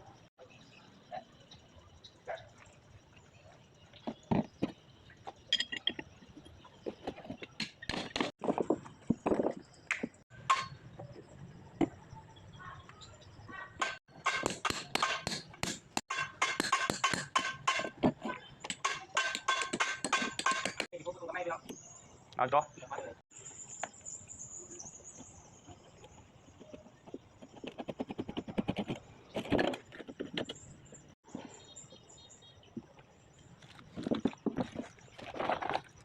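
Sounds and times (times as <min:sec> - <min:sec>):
metal tools clinking on steel: 0:05.5 - 0:06.0.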